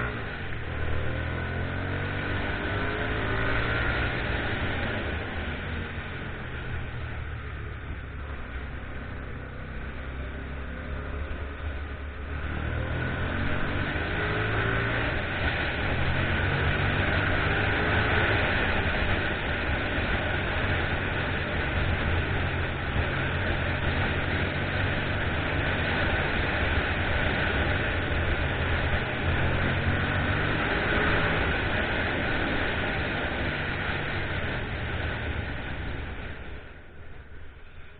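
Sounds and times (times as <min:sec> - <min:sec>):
motorcycle engine running: 0:00.0 - 0:37.8
road noise: 0:00.0 - 0:37.9
rushing wind: 0:11.9 - 0:37.9.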